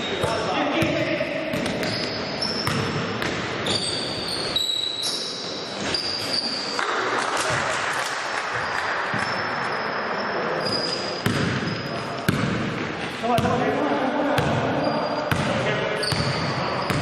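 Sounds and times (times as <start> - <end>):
shoes squeaking: 1.6 - 2.9, 3.6 - 7.7, 8.5 - 12.2, 14.8 - 17.0
basketball bouncing on hardwood: 2.6 - 3.4.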